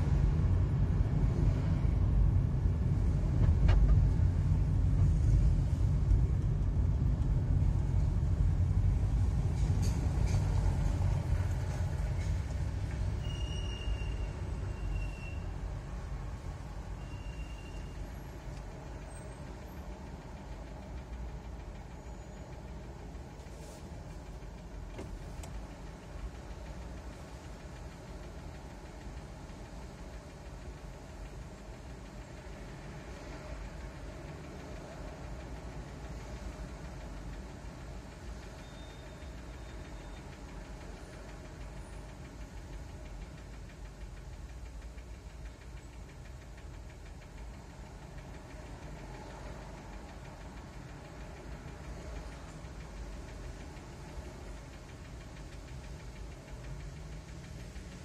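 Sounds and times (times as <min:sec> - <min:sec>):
car engine idling: 0:14.2 - 0:58.0.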